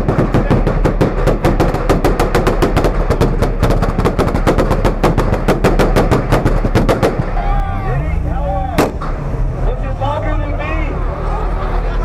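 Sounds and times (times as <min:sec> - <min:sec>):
car exhaust popping and banging: 0:00.0 - 0:07.5, 0:08.8 - 0:09.5
engine low rumble: 0:00.0 - 0:12.0.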